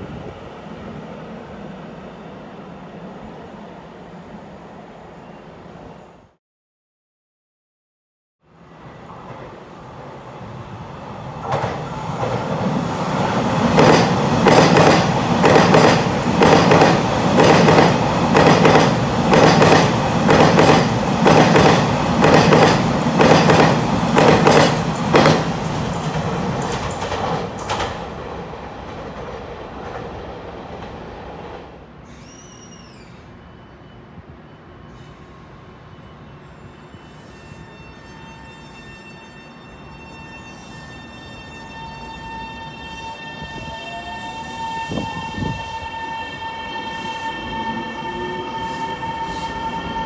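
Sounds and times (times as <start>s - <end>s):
train wheels clacking over rail joints: 13.7s - 28.1s.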